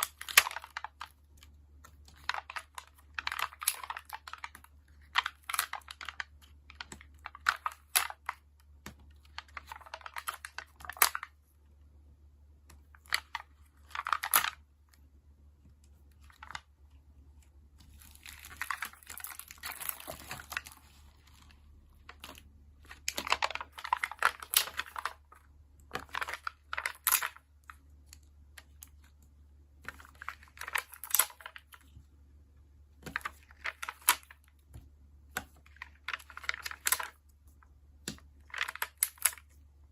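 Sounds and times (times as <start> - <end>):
sticker sheets peeling and tapping: 12.6 - 32.2
crinkly paper rustling: 17.7 - 29.1, 33.0 - 34.5, 35.3 - 37.2.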